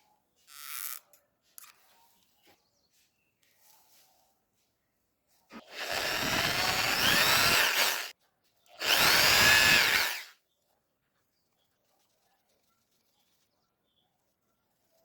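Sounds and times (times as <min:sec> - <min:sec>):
handheld power tool running: 0:05.6 - 0:08.1, 0:08.8 - 0:10.3.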